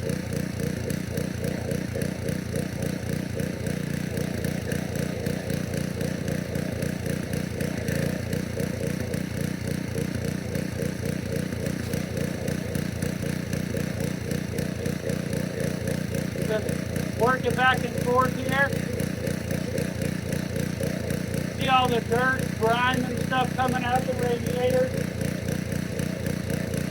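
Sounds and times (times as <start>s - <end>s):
pressure washer engine running: 0.0s - 26.9s.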